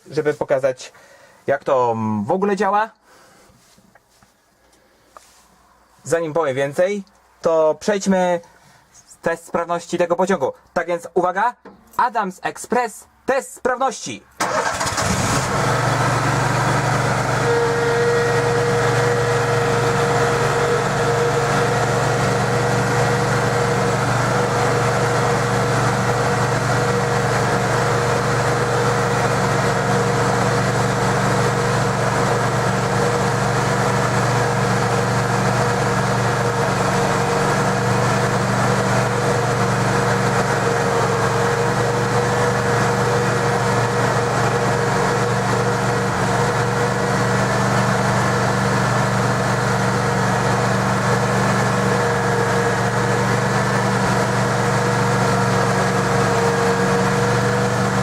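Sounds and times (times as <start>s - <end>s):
petrol engine idling: 14.4s - 58.0s.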